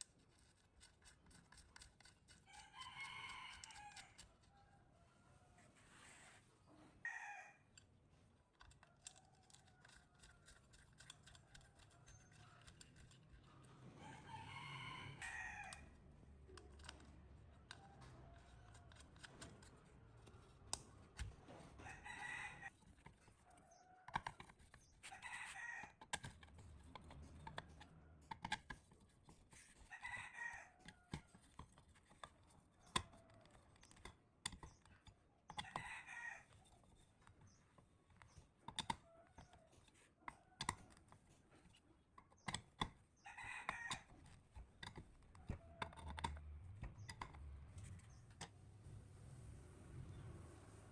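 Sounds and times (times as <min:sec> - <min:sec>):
faint rooster crowing: 0:02.4 - 0:07.8, 0:08.6 - 0:28.6, 0:29.3 - 0:34.0, 0:35.5 - 0:42.6, 0:43.2 - 0:48.6
small sharp clicks and taps: 0:16.4 - 0:21.6, 0:22.9 - 0:29.9, 0:30.8 - 0:35.9, 0:36.5 - 0:48.6.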